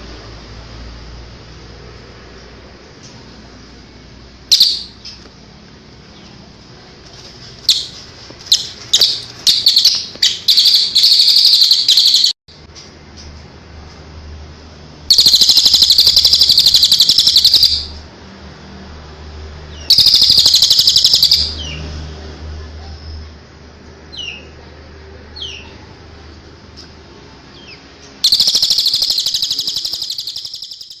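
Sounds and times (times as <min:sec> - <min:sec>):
songbird trilling: 0:04.5 - 0:05.2, 0:07.7 - 0:12.3, 0:15.1 - 0:18.0, 0:19.8 - 0:21.8, 0:27.6 - 0:31.0
downward-sliding bird chirps: 0:07.7 - 0:12.4, 0:15.1 - 0:18.0, 0:19.8 - 0:21.8, 0:28.2 - 0:31.0.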